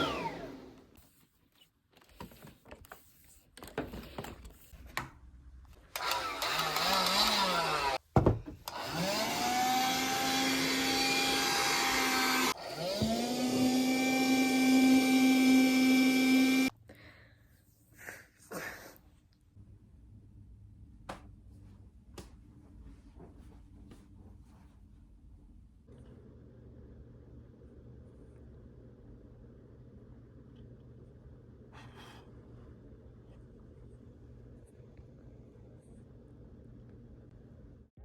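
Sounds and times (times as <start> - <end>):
vacuum cleaner motor whine: 0.0 - 0.9, 5.9 - 8.0, 8.7 - 16.7.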